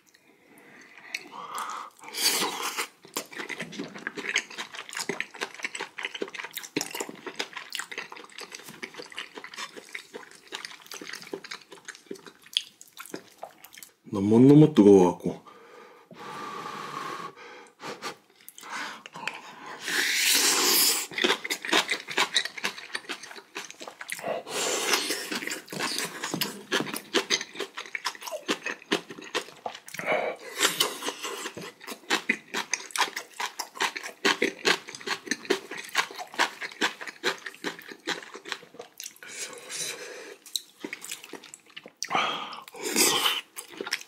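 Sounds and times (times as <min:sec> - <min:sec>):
wet chewing: 0:00.8 - 0:14.0, 0:20.3 - 0:39.7, 0:40.3 - 0:44.0
breathy huffs: 0:42.1 - 0:42.7.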